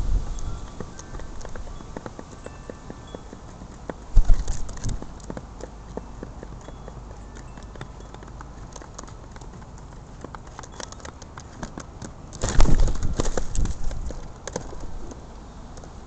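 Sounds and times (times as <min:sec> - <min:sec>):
pigeons tapping on ground: 0:00.0 - 0:16.0
pigeon wing flurry: 0:12.4 - 0:14.9.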